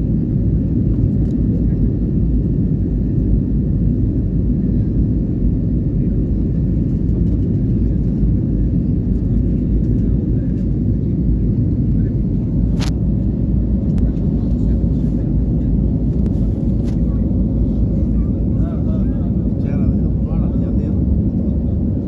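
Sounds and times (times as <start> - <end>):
airliner roar: 0.0 - 22.0.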